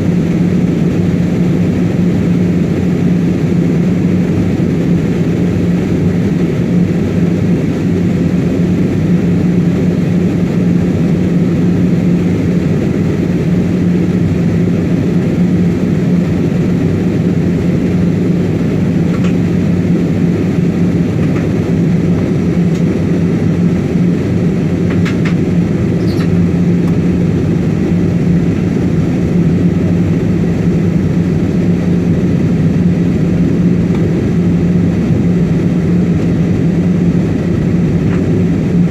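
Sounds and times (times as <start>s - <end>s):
airliner cabin roar: 0.0s - 38.9s
constant low hum: 0.0s - 38.9s.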